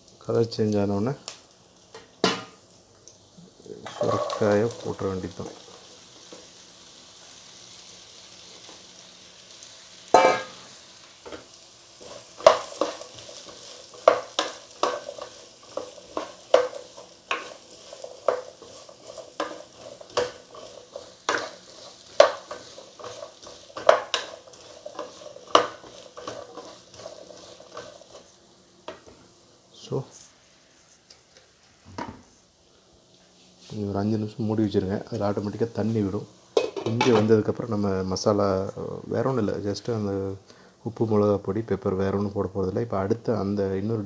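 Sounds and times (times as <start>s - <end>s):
vegetables sizzling in oil: 0.0s - 44.0s
spatula scraping and knocking pan: 10.1s - 10.6s, 11.2s - 28.2s.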